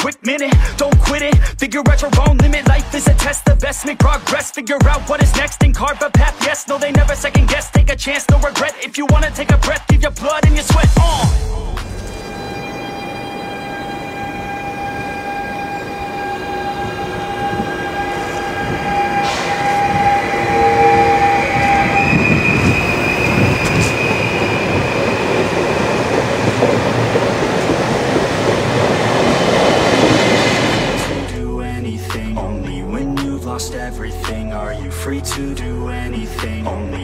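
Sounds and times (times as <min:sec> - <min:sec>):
train rolling noise: 0:09.3 - 0:32.2
electric train traction whine: 0:11.4 - 0:31.5.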